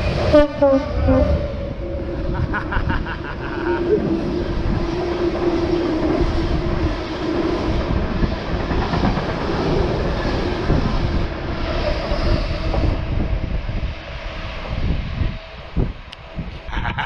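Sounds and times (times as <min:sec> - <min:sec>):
freight train rumbling on rails: 0:00.0 - 0:17.0.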